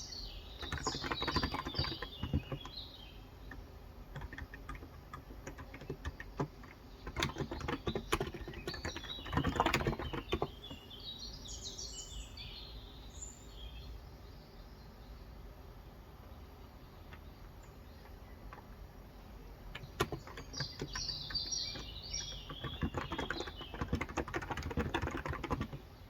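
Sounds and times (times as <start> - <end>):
bird chirping: 0.0 - 15.5, 16.2 - 26.0
keyboard typing: 0.6 - 2.8, 3.4 - 10.8, 19.7 - 25.9.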